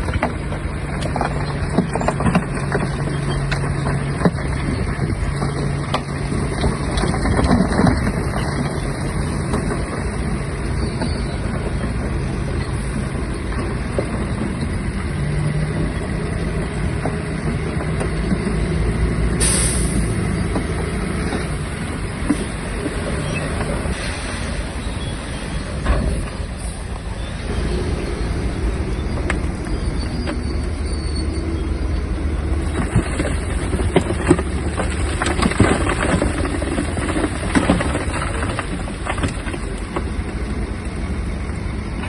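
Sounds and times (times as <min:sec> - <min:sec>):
bulldozer diesel engine running: 0:00.0 - 0:42.0
sharp hiss: 0:19.4 - 0:20.0.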